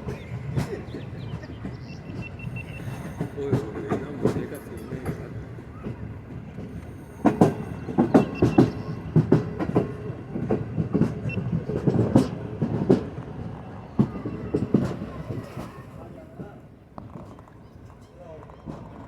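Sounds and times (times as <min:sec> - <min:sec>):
train wheels clattering over joints: 0:00.0 - 0:13.2
train rumbling: 0:00.0 - 0:17.6.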